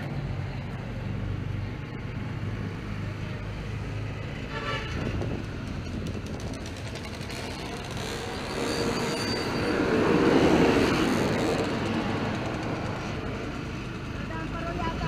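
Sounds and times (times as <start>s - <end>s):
faint high squeal: 8.2s - 10.3s.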